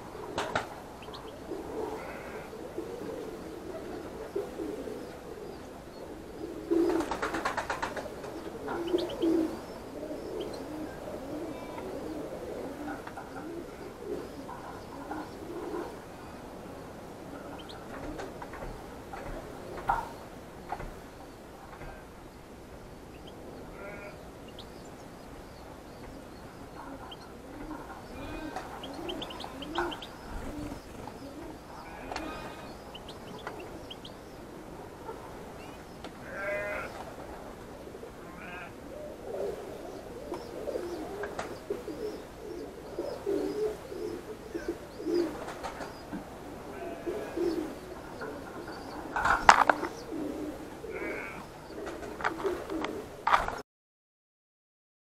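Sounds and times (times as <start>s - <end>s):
lower bird calls: 0.0s - 16.6s, 17.3s - 18.4s, 19.4s - 37.0s, 38.2s - 51.8s
finches chirping: 8.4s - 11.7s, 23.1s - 34.5s.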